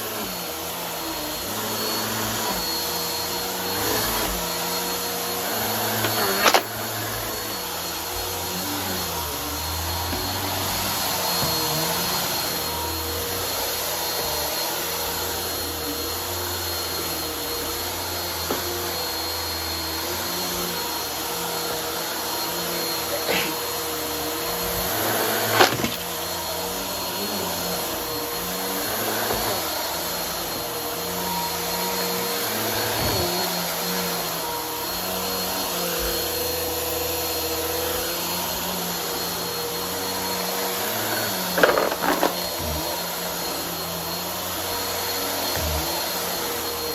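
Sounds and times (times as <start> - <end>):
vacuum cleaner motor whine: 0.0 - 46.9.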